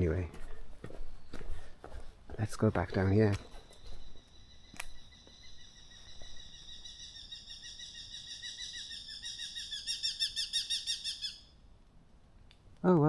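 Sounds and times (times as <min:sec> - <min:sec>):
songbird trilling: 0:03.1 - 0:11.5.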